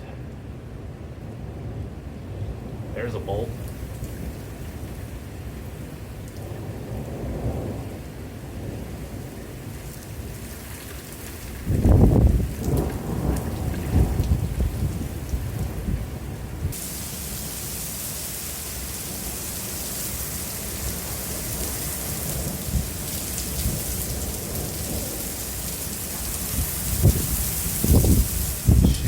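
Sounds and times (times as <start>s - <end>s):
thunder rumbling: 0.0s - 29.0s
heavy rain hissing: 2.6s - 29.0s.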